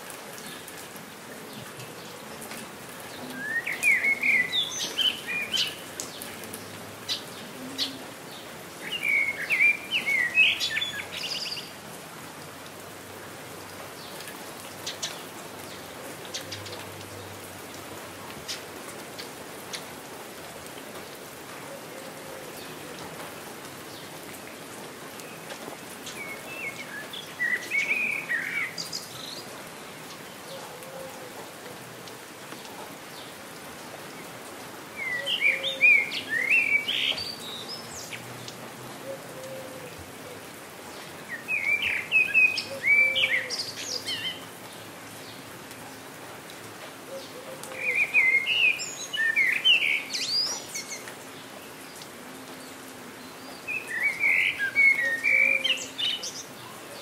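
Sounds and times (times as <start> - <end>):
steady rain falling: 0.0 - 57.0
songbird chirping: 3.0 - 11.8, 22.2 - 30.9, 35.0 - 45.5, 47.1 - 57.0.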